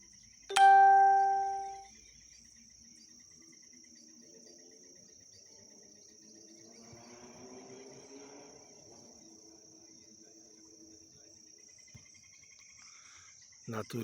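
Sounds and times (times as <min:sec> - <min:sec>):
loud pitched ding: 0:00.5 - 0:01.8.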